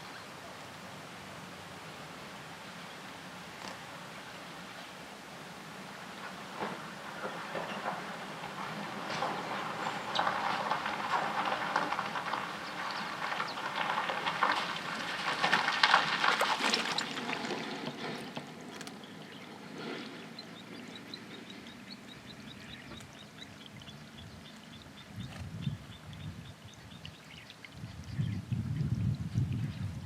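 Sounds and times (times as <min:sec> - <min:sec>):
water splashing and trickling: 0:08.0 - 0:30.0.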